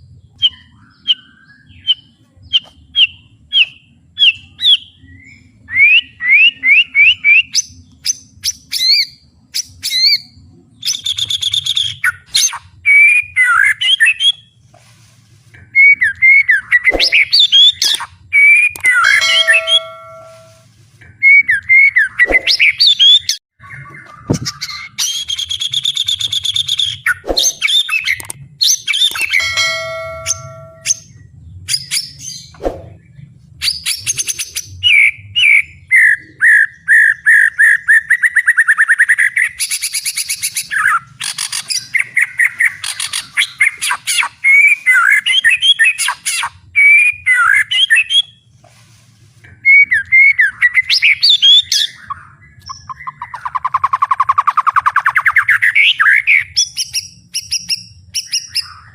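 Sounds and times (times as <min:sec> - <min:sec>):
songbird singing loudly: 0:00.2 - 0:14.5, 0:15.7 - 0:20.6.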